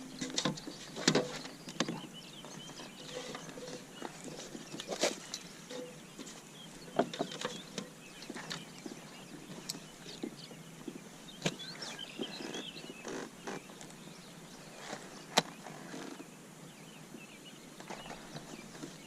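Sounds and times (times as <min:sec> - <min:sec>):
faint bird chirps: 0:00.0 - 0:19.0
fishing gear clicks and knocks: 0:00.1 - 0:14.0.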